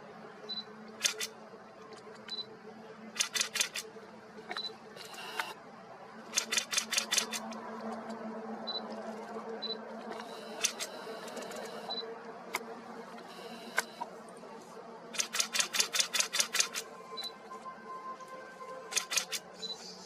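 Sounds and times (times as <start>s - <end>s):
camera shutter clicking: 1.0s - 1.3s, 3.2s - 3.9s, 6.3s - 7.5s, 10.2s - 11.9s, 15.2s - 16.8s, 18.9s - 19.5s.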